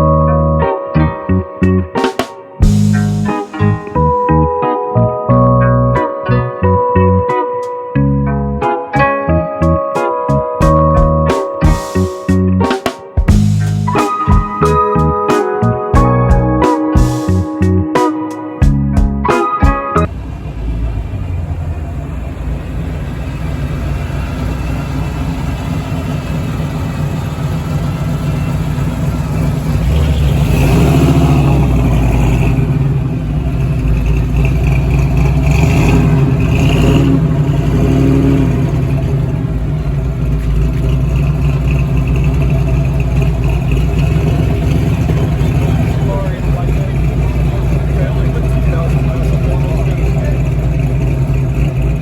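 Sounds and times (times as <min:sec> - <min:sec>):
car engines revving: 0:02.6 - 0:07.1, 0:20.0 - 0:52.0.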